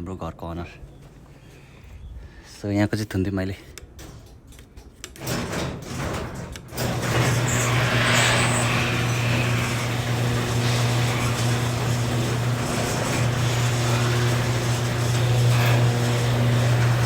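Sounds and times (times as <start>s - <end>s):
engine humming: 6.9s - 17.0s.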